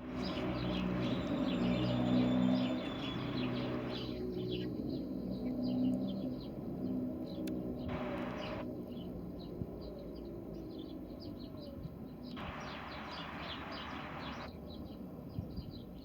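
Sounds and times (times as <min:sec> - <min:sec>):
small birds chirping: 0:00.0 - 0:16.0
steady hiss: 0:07.9 - 0:08.6, 0:12.4 - 0:14.5.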